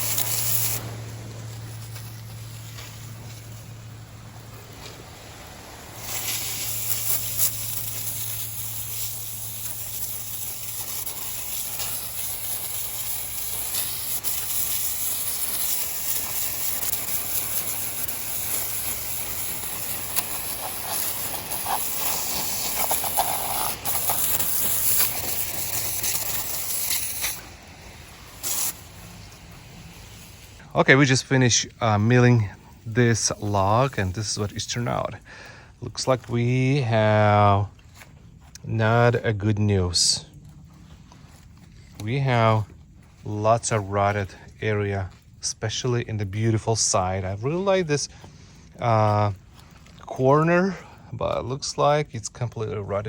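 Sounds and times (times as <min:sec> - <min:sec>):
saw blade hissing through log: 0:00.0 - 0:01.1, 0:05.8 - 0:30.6
band sawmill humming: 0:00.0 - 0:36.3.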